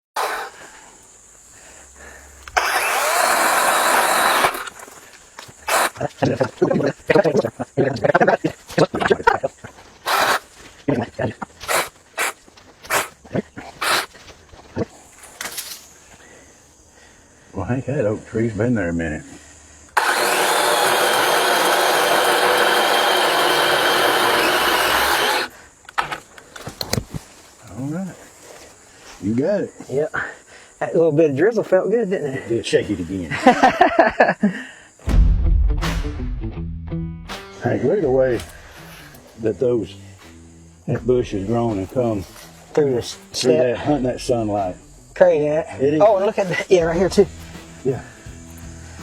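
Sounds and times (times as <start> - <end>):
engine cranking: 2.4 - 4.8, 20.0 - 25.5
motor running steadily: 20.0 - 25.5.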